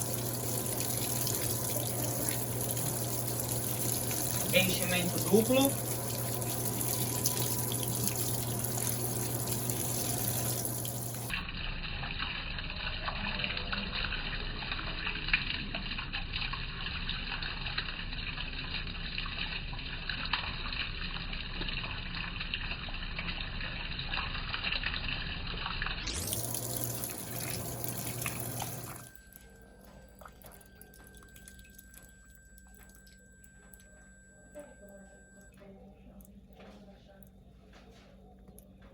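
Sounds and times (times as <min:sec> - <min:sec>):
steady low hum: 0:00.0 - 0:11.4
water running into washing machine: 0:00.0 - 0:35.4.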